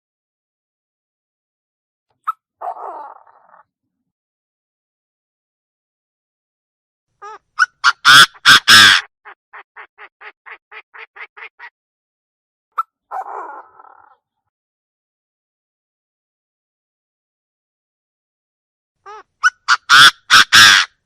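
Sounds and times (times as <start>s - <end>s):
bird calling harshly: 7.2s - 11.7s, 19.1s - 21.0s.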